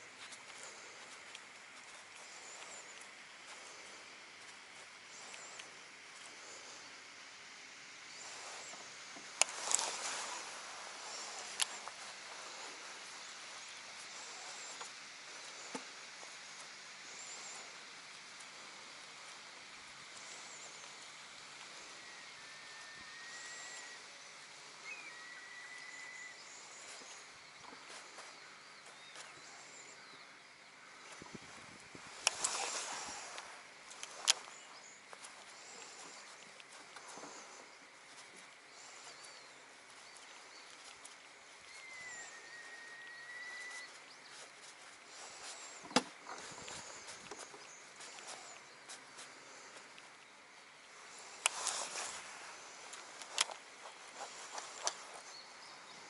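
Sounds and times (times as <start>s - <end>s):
steady hiss: 0.0s - 56.0s
faint high bird chirps: 20.2s - 56.0s
long bird whistles: 22.0s - 27.4s, 41.4s - 44.5s
bird whistled note: 41.7s - 44.0s.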